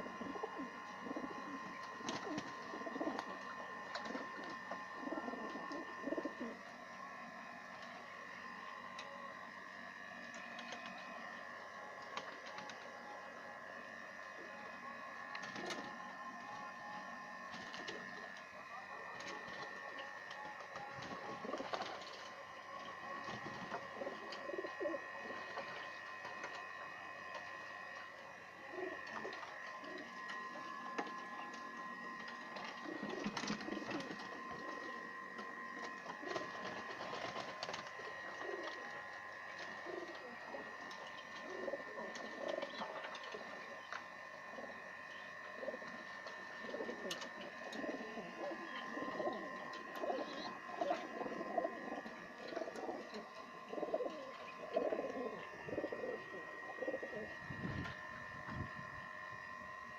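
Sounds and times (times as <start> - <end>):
pigeons cooing: 0.0 - 6.7, 20.7 - 27.8, 28.6 - 58.2
steady high-pitched tone: 0.0 - 59.9.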